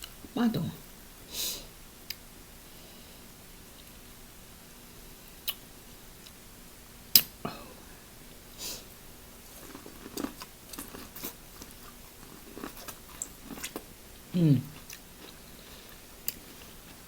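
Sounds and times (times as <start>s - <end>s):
wet chewing and clicking: 9.4s - 17.0s.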